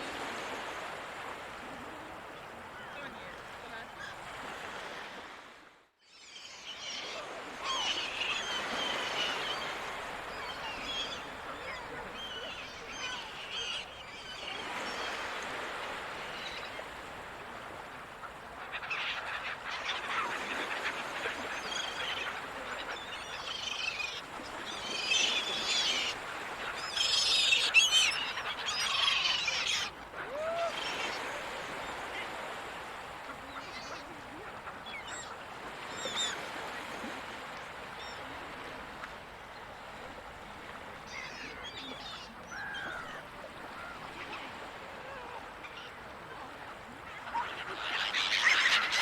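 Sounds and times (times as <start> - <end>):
ocean surf: 0.0 - 5.8, 6.6 - 49.0
seagulls squawking: 6.6 - 16.3, 18.6 - 36.5, 41.1 - 46.0, 47.1 - 49.0.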